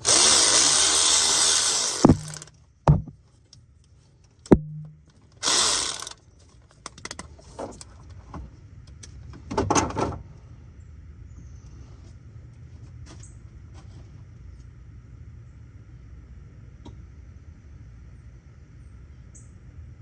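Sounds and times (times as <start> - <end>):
power tool spinning: 0.0 - 3.0, 5.4 - 6.2.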